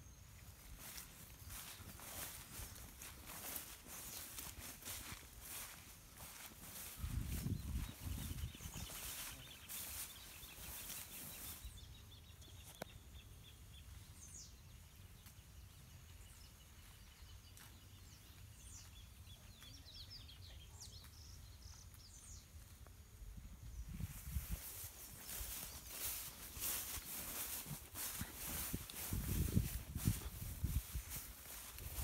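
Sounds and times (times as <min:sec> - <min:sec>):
small birds chirping: 0:00.0 - 0:22.9, 0:23.6 - 0:32.0
rustling in grass: 0:00.5 - 0:12.0, 0:23.7 - 0:32.0.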